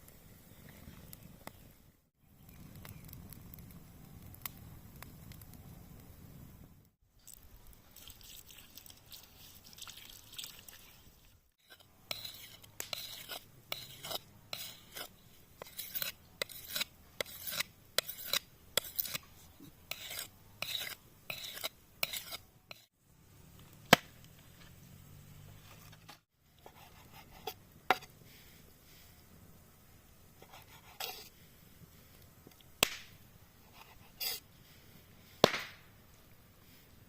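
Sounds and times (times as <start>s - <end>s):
rhythmic scraping on hard surface: 11.6s - 19.2s, 19.9s - 22.9s.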